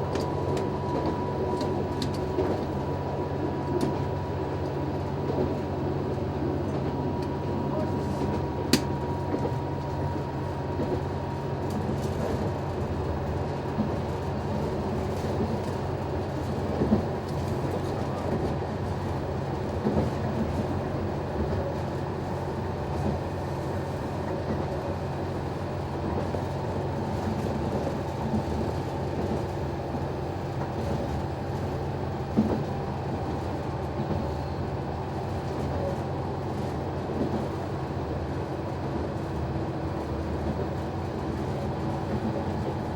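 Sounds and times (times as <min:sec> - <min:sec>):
diesel railcar engine drone: 0:00.0 - 0:42.9.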